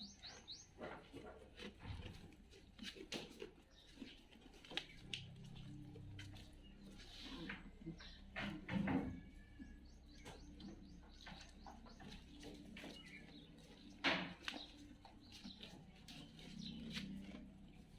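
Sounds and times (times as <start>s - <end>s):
birds chirping: 0.0s - 0.9s, 4.9s - 17.9s.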